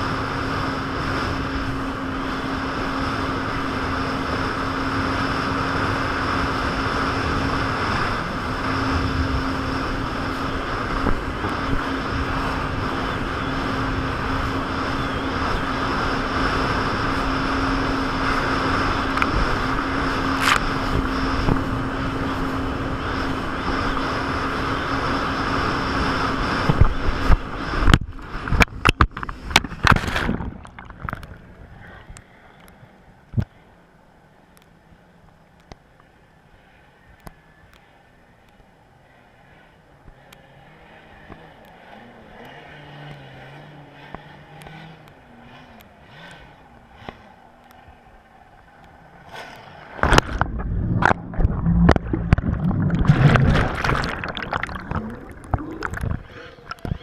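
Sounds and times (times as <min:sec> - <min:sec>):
jet ski engine running: 0:00.0 - 0:57.0
wind: 0:00.0 - 0:57.0
rushing water: 0:25.0 - 0:32.7, 0:48.5 - 0:57.0
loud knocks and splashes: 0:50.0 - 0:56.1.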